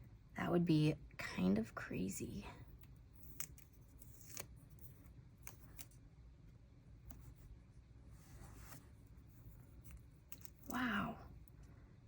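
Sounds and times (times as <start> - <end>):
stickers peeling and rustling: 2.8 - 6.0, 8.6 - 10.8.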